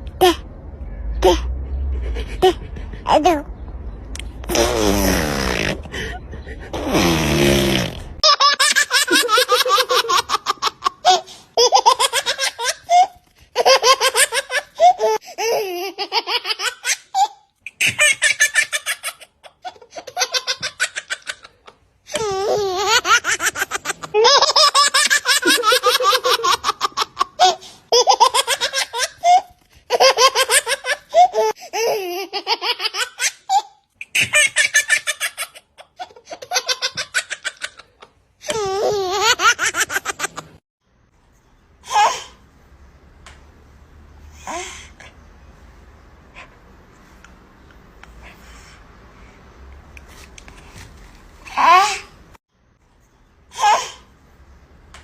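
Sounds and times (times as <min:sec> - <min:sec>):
baby laughing: 0:01.2 - 0:03.5, 0:05.6 - 0:07.2, 0:08.2 - 0:40.6.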